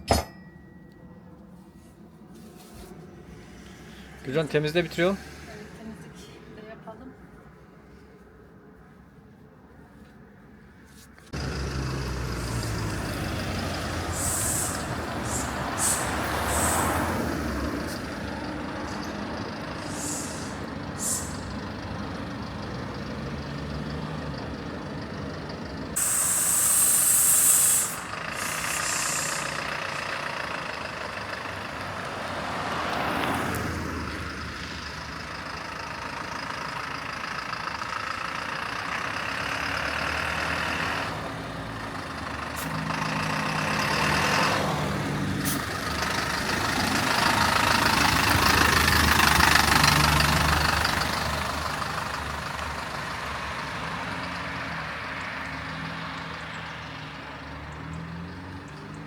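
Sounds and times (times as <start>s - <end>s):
vehicle engine running: 11.2s - 59.0s
loud hiss: 13.9s - 17.2s, 19.8s - 21.5s, 26.0s - 29.7s.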